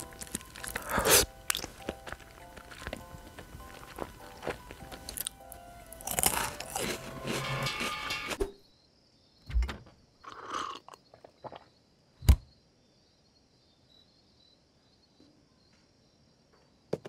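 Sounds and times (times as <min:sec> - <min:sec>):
dry noodles crunching: 0:00.0 - 0:08.0.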